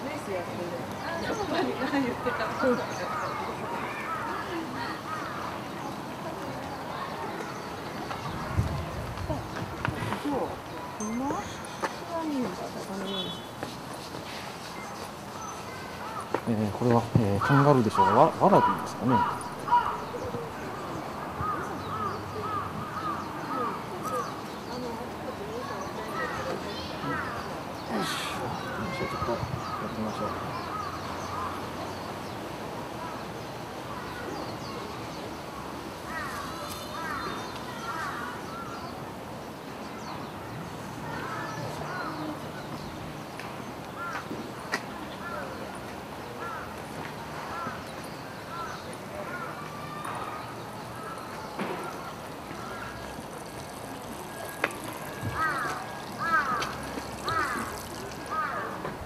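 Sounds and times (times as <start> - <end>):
birds calling faintly: 0.0 - 59.0
bird calling: 14.7 - 24.9, 47.5 - 59.0.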